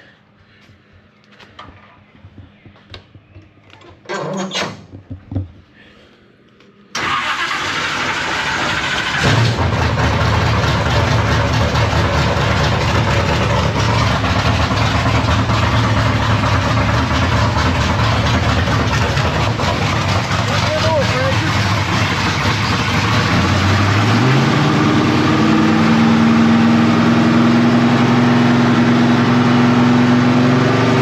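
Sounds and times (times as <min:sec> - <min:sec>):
race car engine starting and running: 0:06.9 - 0:31.0.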